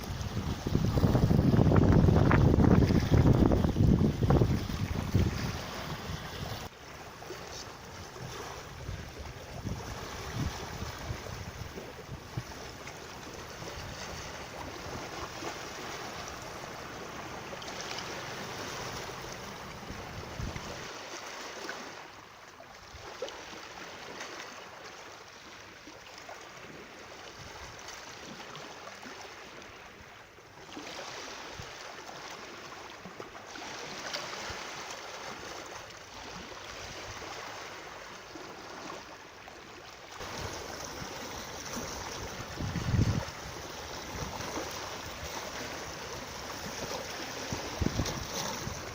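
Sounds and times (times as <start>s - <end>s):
wind buffeting microphone: 0.0s - 6.7s, 8.1s - 15.2s, 19.0s - 20.9s, 40.2s - 48.9s
rushing water: 0.0s - 48.9s.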